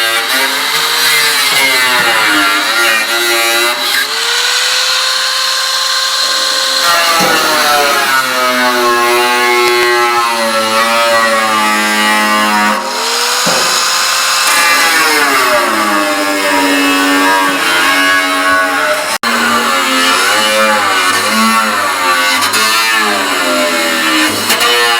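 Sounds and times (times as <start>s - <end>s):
power tool motor working steel: 0.0s - 24.9s.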